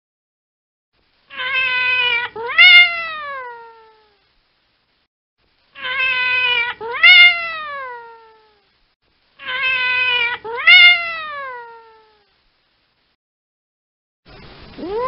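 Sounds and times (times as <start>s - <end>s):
cat meowing: 1.3s - 4.2s, 5.8s - 8.6s, 9.4s - 12.2s, 14.8s - 15.0s.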